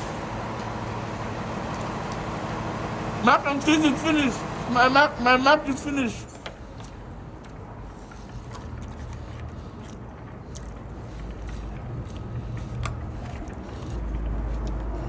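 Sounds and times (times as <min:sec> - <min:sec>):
person chewing and biting: 0:06.6 - 0:15.0.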